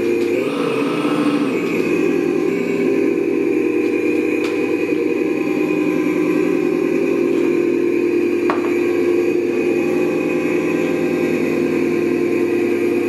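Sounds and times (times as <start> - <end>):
small motor whirring: 0.0 - 4.3.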